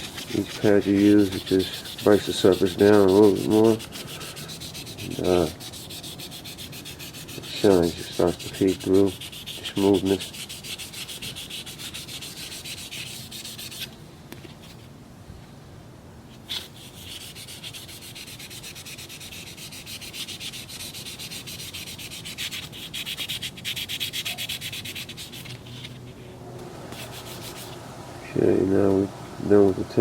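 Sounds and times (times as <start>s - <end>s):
sanding pad scratching: 0.0s - 14.0s, 16.4s - 26.2s, 26.9s - 27.8s.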